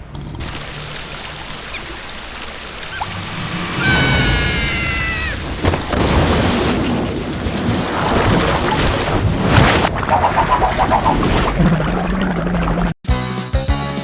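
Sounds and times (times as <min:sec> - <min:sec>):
noisy rumble: 0:00.6 - 0:07.6
high-pitched squealing cry: 0:02.9 - 0:05.6
music: 0:13.0 - 0:14.0.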